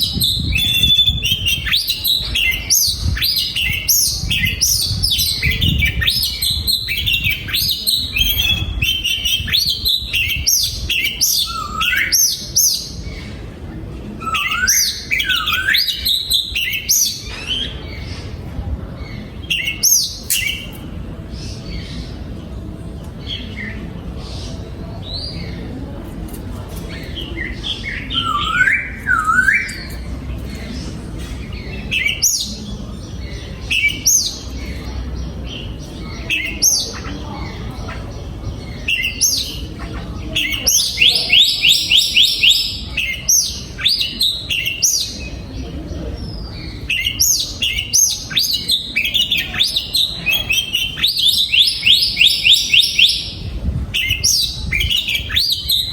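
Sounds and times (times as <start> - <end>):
bird singing whistled phrases: 0.1 - 12.8, 14.2 - 17.7, 27.9 - 29.9.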